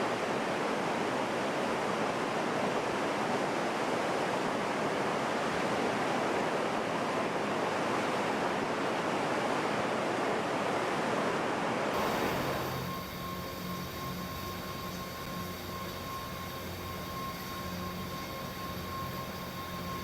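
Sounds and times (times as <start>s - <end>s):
machinery hum: 12.0s - 20.0s.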